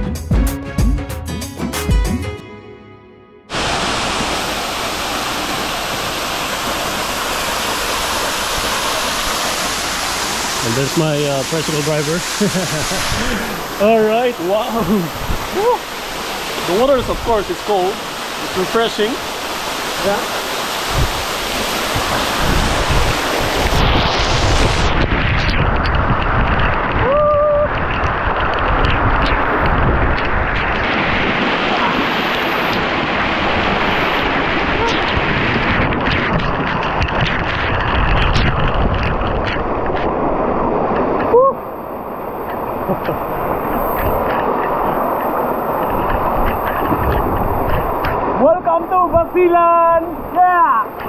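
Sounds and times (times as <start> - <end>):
background music: 0.0 - 3.5
waterfall rushing: 3.5 - 51.0
wind buffeting microphone: 3.5 - 51.0.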